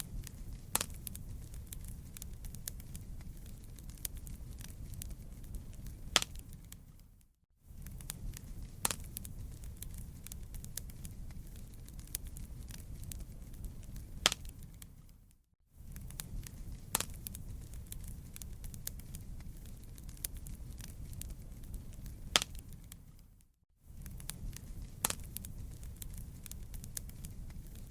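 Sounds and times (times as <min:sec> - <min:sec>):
rumble of campfire flames: 0:00.0 - 0:27.9
wood crackling and popping: 0:00.0 - 0:27.9.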